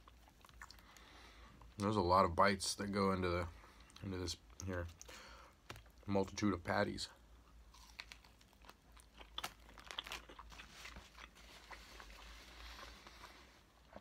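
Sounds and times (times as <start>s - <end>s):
chewing with mouth clicks: 0.0s - 1.1s, 7.7s - 14.0s.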